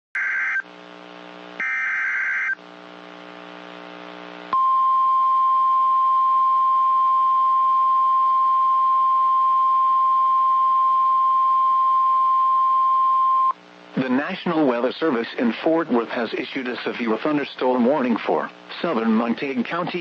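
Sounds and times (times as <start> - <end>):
loud steady high beep alarm: 0.2 - 0.6, 1.6 - 2.6, 4.6 - 13.6.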